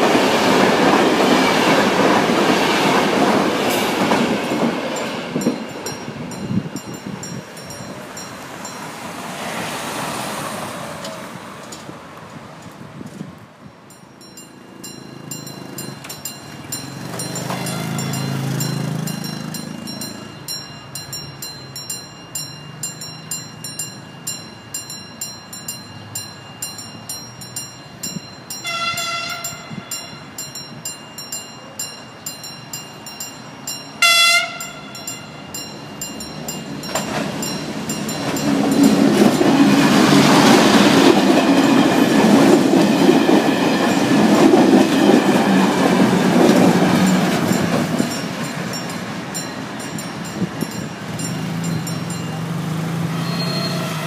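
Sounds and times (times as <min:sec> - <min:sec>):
train rumbling past: 0:00.0 - 0:54.0
train horn blasts: 0:17.5 - 0:18.2, 0:28.6 - 0:30.2, 0:34.0 - 0:35.4, 0:53.1 - 0:54.0.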